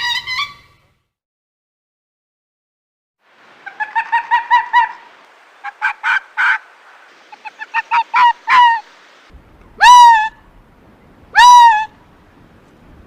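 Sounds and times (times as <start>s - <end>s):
bird calling: 3.6s - 9.0s, 9.7s - 10.5s, 11.3s - 12.0s.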